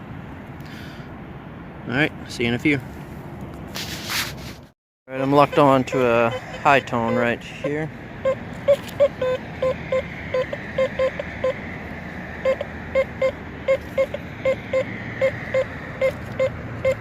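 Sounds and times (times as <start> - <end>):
metal detector short beeps: 5.2 - 11.6, 12.4 - 17.0.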